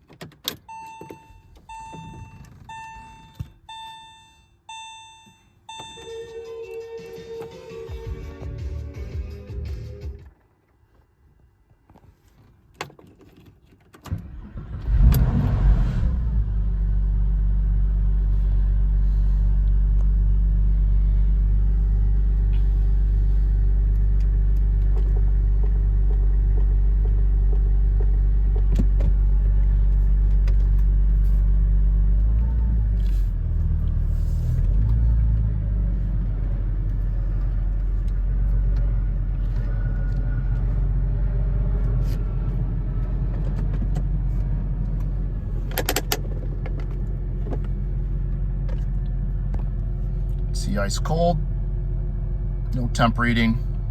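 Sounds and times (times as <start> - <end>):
car engine idling: 14.2 - 53.9.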